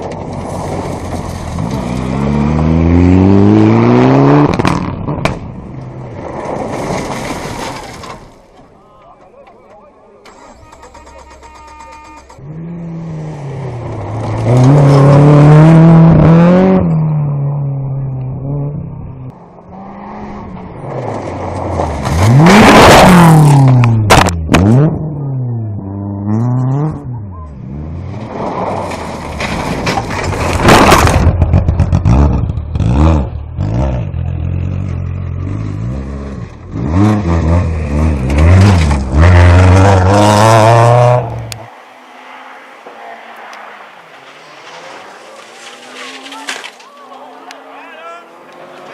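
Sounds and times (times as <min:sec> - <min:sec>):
rally car engines revving: 0:00.0 - 0:07.4, 0:10.2 - 0:48.9
sharp crack: 0:28.2 - 0:32.1, 0:42.7 - 0:47.6
car passing close by: 0:37.2 - 0:48.9.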